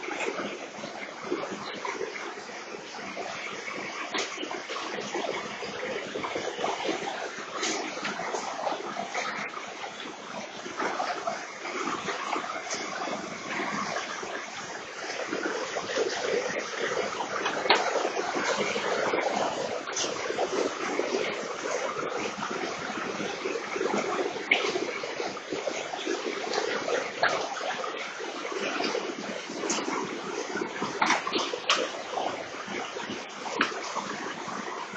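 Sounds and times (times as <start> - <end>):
floodwater rushing: 0.0 - 34.9
small splashes and clicks: 0.0 - 34.9.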